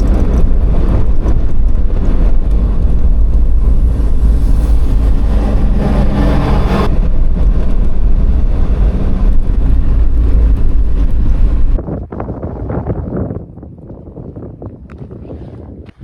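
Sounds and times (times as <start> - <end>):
vehicle driving on gravel: 0.0 - 12.1.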